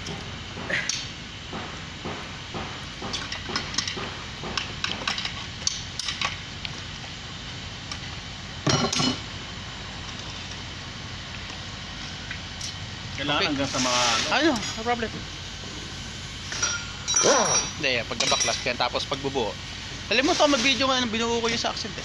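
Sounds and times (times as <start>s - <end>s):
metal tools clinking: 16.4s - 18.9s.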